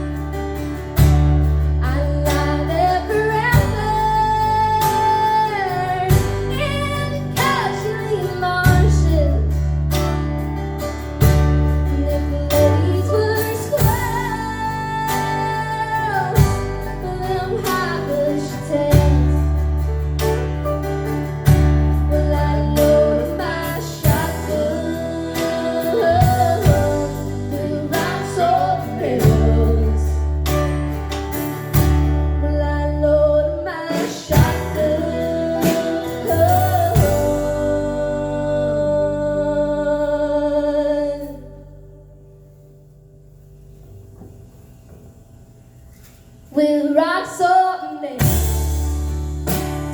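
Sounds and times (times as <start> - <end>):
bass line: 0.0 - 46.8, 48.2 - 49.9
acoustic guitar: 0.0 - 49.9
girl singing: 1.8 - 9.6, 11.9 - 19.4, 22.0 - 30.2, 32.4 - 41.8, 46.5 - 48.4.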